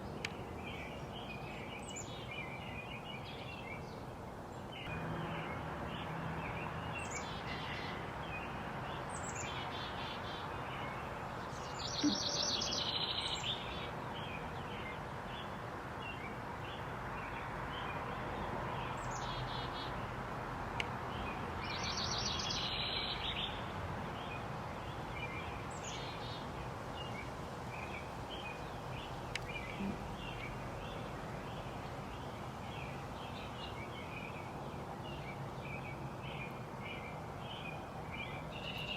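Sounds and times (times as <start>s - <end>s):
longer bird call phrases: 0.0s - 16.9s, 21.3s - 23.7s, 25.2s - 38.9s
background hiss: 0.0s - 38.9s
small bird chirps: 6.6s - 13.9s.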